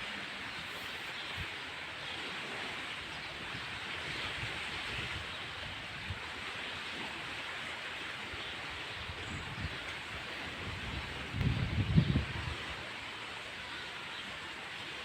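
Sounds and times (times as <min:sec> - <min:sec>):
steady rushing outdoor noise: 0:00.0 - 0:15.0
wind buffeting microphone: 0:08.8 - 0:12.9.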